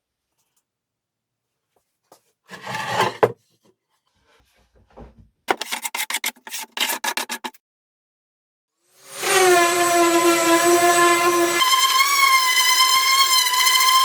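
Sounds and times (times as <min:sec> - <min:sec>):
hand tool scraping on wood: 0:02.5 - 0:03.4.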